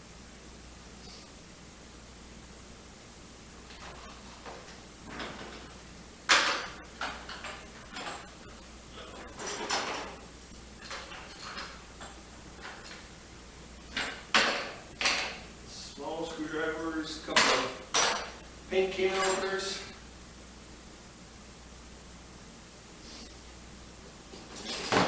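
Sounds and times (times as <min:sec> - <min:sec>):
hand tools clattering and clinking: 0:03.7 - 0:13.1, 0:13.9 - 0:15.4, 0:16.6 - 0:18.4, 0:19.1 - 0:19.6, 0:24.3 - 0:25.0.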